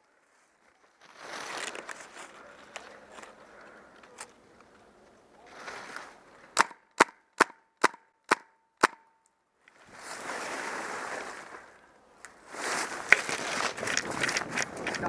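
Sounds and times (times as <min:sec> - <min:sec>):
rustling noise: 0:00.0 - 0:03.4, 0:04.1 - 0:06.6, 0:09.7 - 0:15.0
airsoft gun shots: 0:06.6 - 0:09.1.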